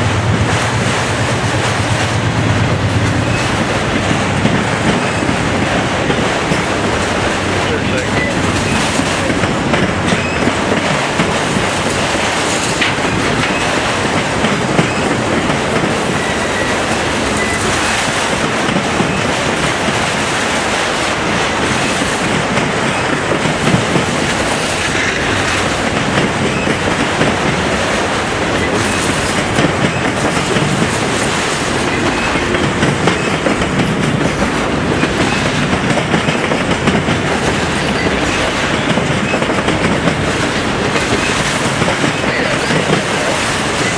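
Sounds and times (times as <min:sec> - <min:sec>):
train cars rolling past: 0:00.0 - 0:43.9
wheels clicking over rail joints: 0:03.0 - 0:15.8.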